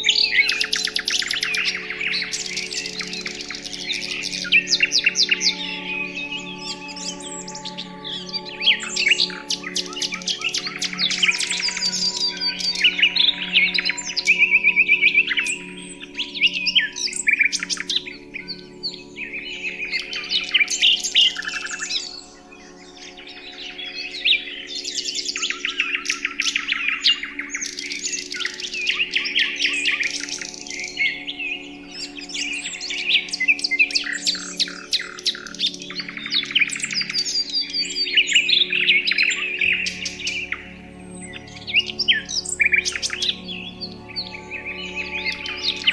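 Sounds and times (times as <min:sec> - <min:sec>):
birds chirping and trilling: 0:00.0 - 0:45.9
soft musical drone: 0:00.0 - 0:45.9.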